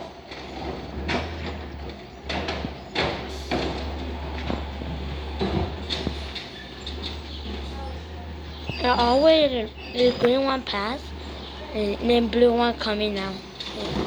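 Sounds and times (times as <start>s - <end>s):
bin clanking and banging: 0.0s - 8.0s
truck engine drone: 0.0s - 14.0s.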